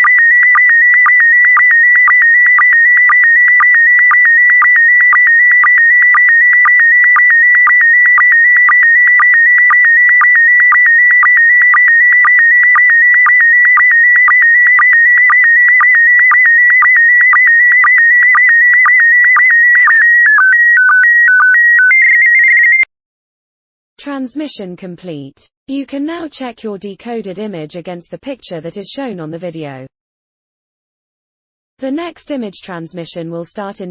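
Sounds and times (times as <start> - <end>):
high warbling signal tone: 0.0 - 22.9.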